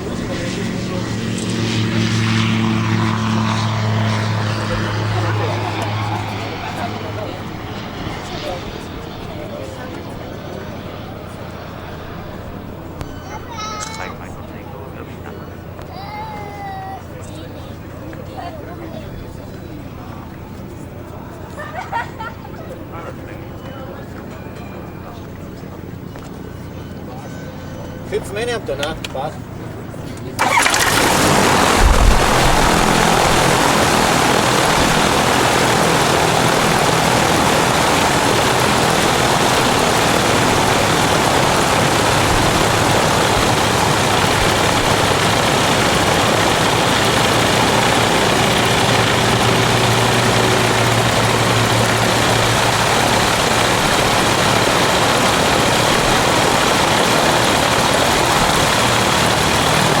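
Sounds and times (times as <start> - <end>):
propeller aircraft engine droning: 0.0 - 60.0.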